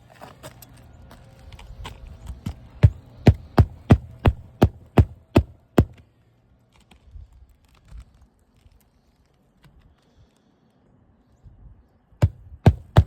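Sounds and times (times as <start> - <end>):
hatchet hammering nails: 2.8 - 6.0, 12.2 - 13.0.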